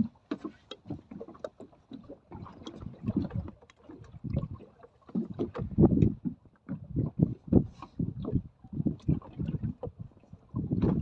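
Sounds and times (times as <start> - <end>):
low thumps on hull: 0.0 - 11.0
water slapping against boat hull: 0.0 - 11.0.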